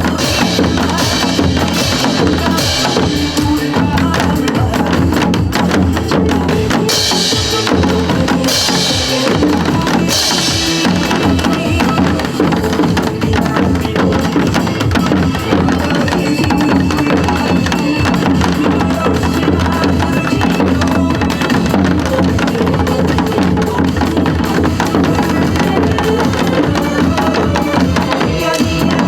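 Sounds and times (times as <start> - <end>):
backing music with steady beat: 0.0 - 29.0
hourglass drums played rapidly: 0.0 - 29.0.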